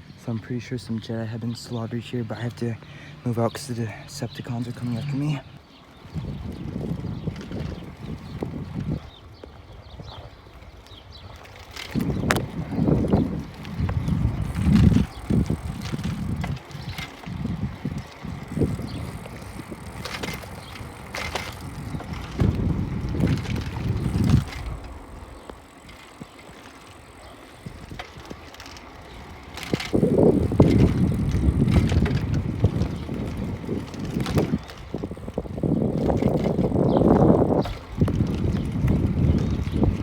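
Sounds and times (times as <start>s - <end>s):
wind buffeting microphone: 0.0s - 40.0s
bicycle clicks and rattles: 0.1s - 40.0s.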